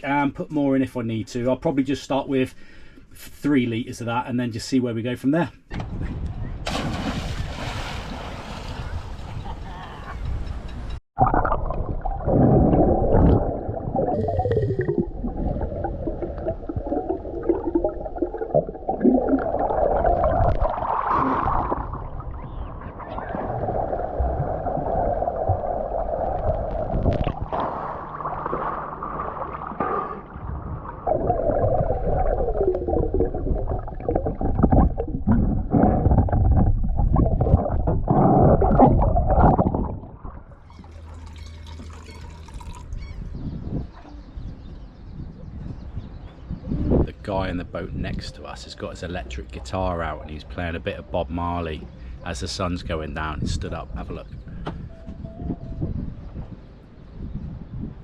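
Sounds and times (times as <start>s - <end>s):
oil glugging as poured: 27.0s - 43.2s.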